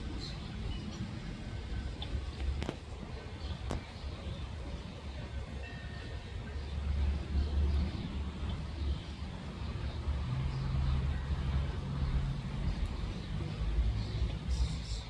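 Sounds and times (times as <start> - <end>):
vehicle engine rumble: 0.0 - 5.6, 6.4 - 15.0.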